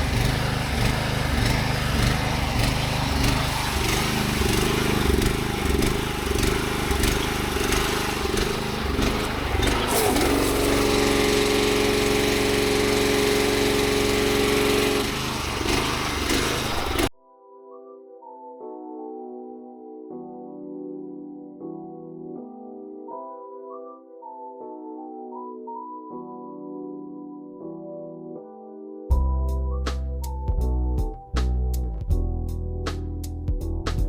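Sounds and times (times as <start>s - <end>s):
pressure washer engine running: 0.0s - 17.1s.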